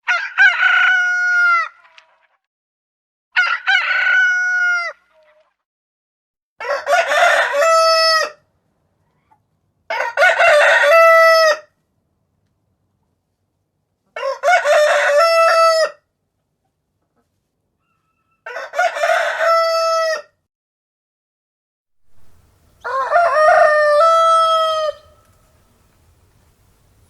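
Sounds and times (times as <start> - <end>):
rooster crowing: 0.1 - 1.8, 3.4 - 5.0, 6.6 - 8.4, 9.9 - 11.7, 14.2 - 16.0, 17.9 - 20.4, 22.1 - 25.5.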